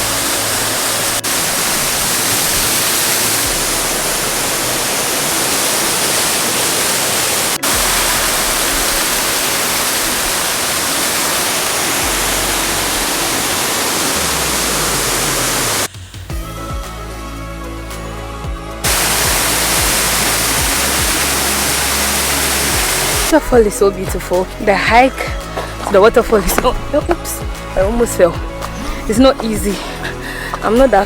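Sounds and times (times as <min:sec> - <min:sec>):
waterfall rushing: 0:00.0 - 0:15.9, 0:18.8 - 0:23.5.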